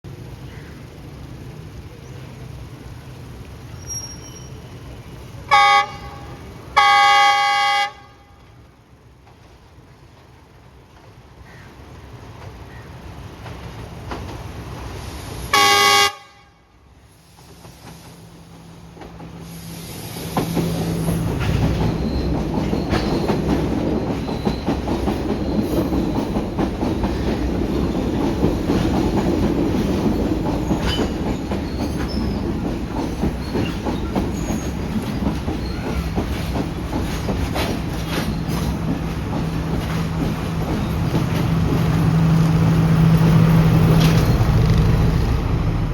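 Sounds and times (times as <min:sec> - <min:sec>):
train horn blast: 0:05.5 - 0:08.6, 0:15.5 - 0:16.8
wheels clattering over rail joints: 0:20.2 - 0:45.7
diesel engine drone: 0:41.0 - 0:45.9.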